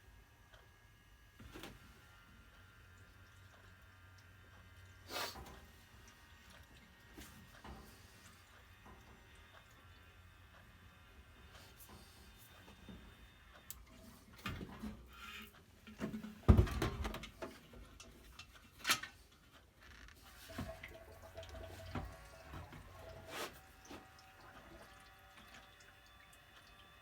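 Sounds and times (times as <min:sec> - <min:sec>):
trickling liquid: 0:02.6 - 0:10.6, 0:13.6 - 0:27.0.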